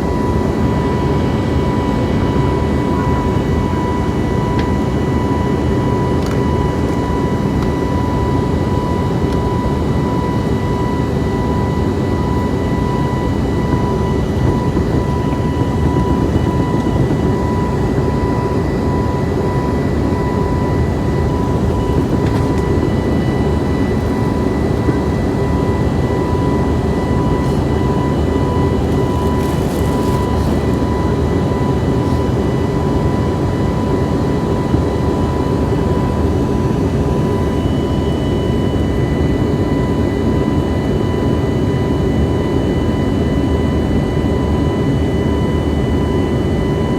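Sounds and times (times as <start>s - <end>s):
jet engines and airflow rush: 0.0s - 46.9s
steady high whine: 0.0s - 46.9s.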